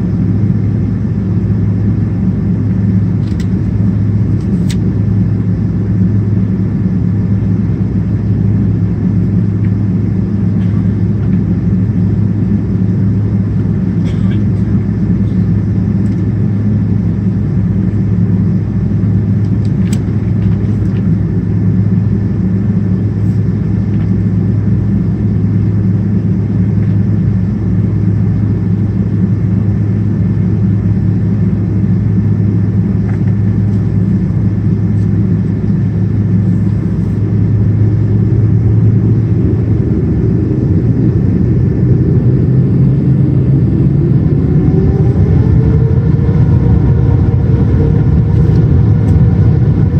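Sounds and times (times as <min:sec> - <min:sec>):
airliner cabin roar: 0:00.0 - 0:49.9
rising whine: 0:14.8 - 0:49.9.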